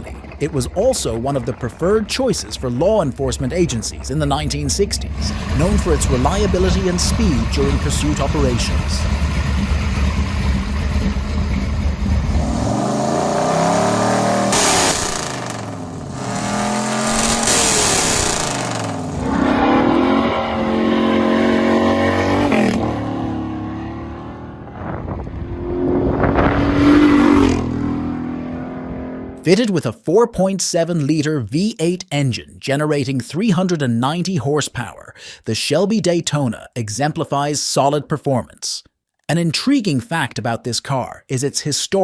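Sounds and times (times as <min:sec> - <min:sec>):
car engine revving: 0:00.0 - 0:29.4.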